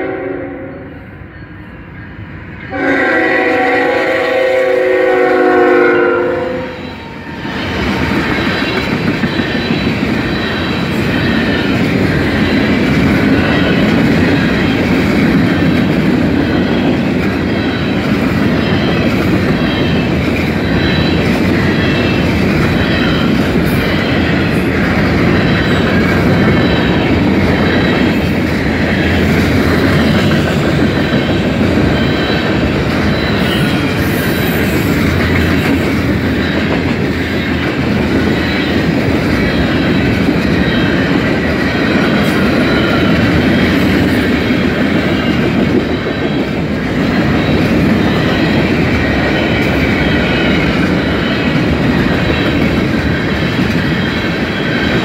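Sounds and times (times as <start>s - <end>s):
train horn chord: 0.0s - 1.0s, 2.7s - 6.9s
freight train rumbling past: 0.0s - 55.0s.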